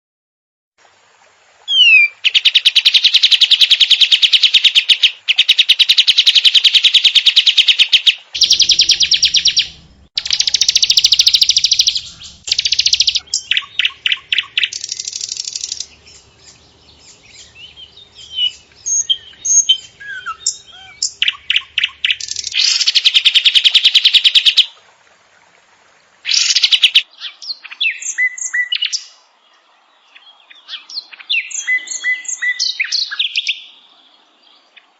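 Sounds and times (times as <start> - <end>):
bird chirps and whistles: 1.7 - 3.6, 5.3 - 22.9
songbird buzzy trills: 1.7 - 24.7.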